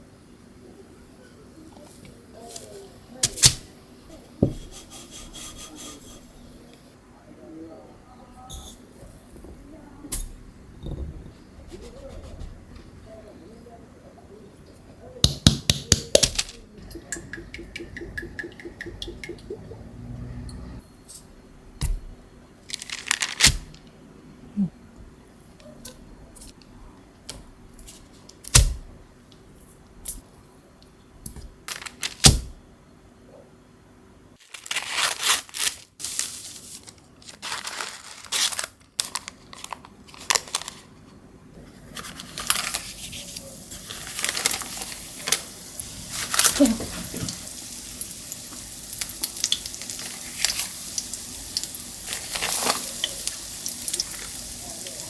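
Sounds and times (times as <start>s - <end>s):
rustling and crinkling: 16.0s - 17.0s, 22.1s - 23.9s, 31.4s - 32.6s, 34.4s - 47.5s, 52.0s - 55.0s.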